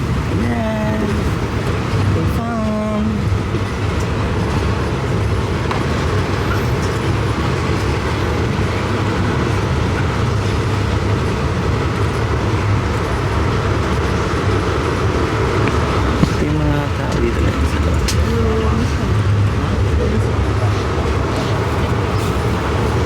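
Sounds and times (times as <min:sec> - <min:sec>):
passenger train rumble: 0:00.0 - 0:23.0.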